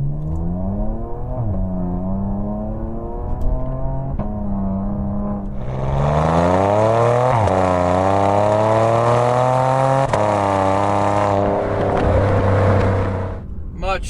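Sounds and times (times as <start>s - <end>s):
car exhaust accelerating: 0.0s - 14.0s.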